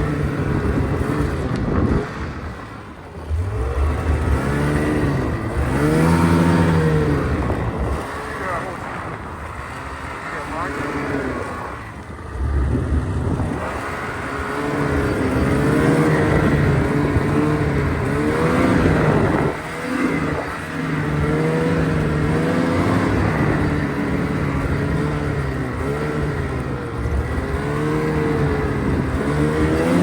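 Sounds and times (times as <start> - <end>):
off-road vehicle engine revving: 0.0 - 30.0.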